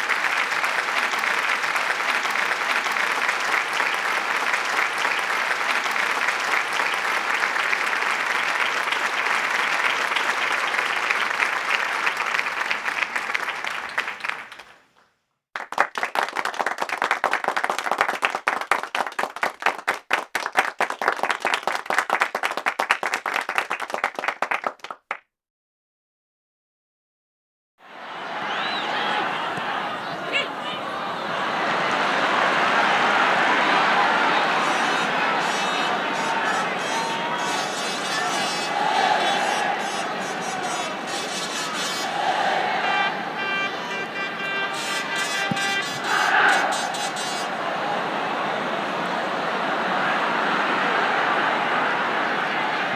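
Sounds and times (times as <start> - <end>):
crowd applause: 0.0 - 14.9, 15.6 - 25.2, 27.8 - 52.9
separate claps: 15.6 - 25.2, 44.1 - 47.5.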